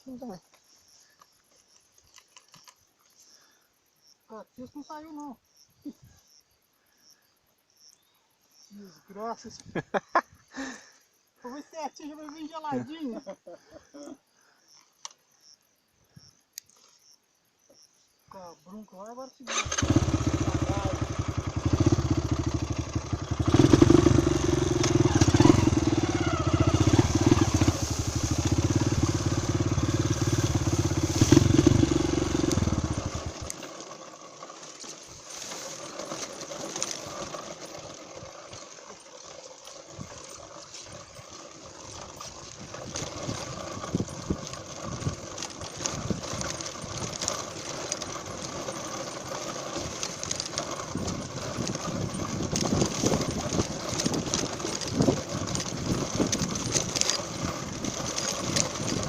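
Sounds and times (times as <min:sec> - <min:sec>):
faint clicks: 0:14.7 - 0:15.2, 0:16.4 - 0:17.0
motorcycle engine running: 0:19.5 - 0:59.0.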